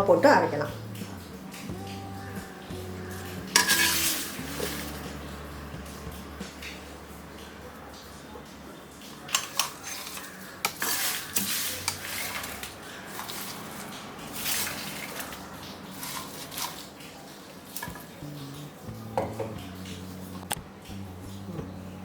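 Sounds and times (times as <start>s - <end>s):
metal spoon clinking and scraping: 3.5s - 4.9s, 9.3s - 13.6s.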